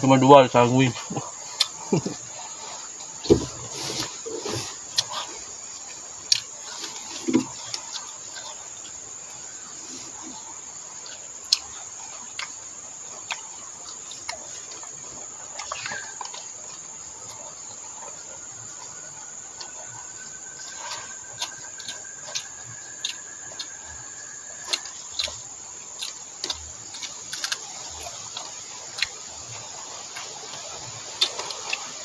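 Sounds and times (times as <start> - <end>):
insects droning: 0.0 - 32.0
person eating: 1.1 - 5.6.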